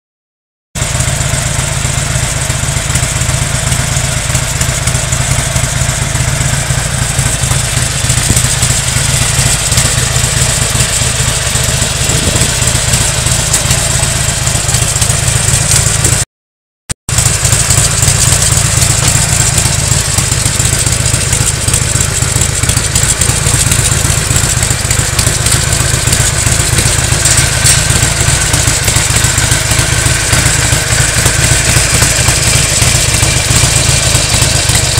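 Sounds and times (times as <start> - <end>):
motorcycle engine idling: 0.8 - 16.2, 17.1 - 34.9.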